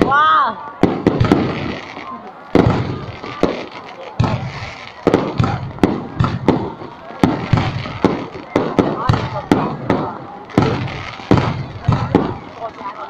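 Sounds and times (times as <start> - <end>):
fireworks booming: 0.0 - 13.0.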